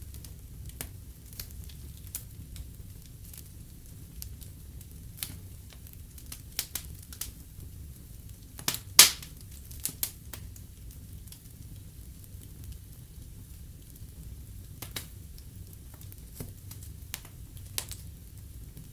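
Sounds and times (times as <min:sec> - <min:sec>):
fire burning in fireplace: 0:00.0 - 0:18.9
fire crackles and pops: 0:00.0 - 0:18.9.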